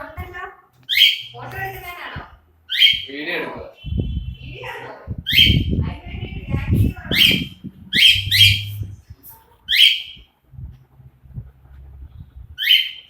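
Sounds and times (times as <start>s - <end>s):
parrot screeching: 0.9s - 1.3s, 2.7s - 3.2s, 5.3s - 5.7s, 7.1s - 8.9s, 9.7s - 10.2s, 12.6s - 13.0s
low rumbling noise: 3.9s - 12.7s.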